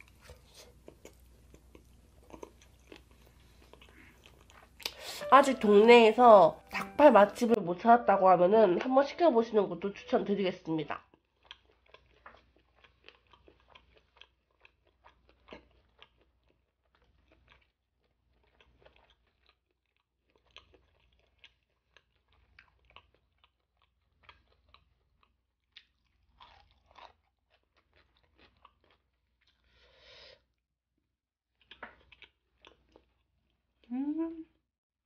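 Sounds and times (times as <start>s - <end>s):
chewing crunchy food: 0.0s - 5.3s, 11.0s - 29.8s, 31.6s - 33.9s.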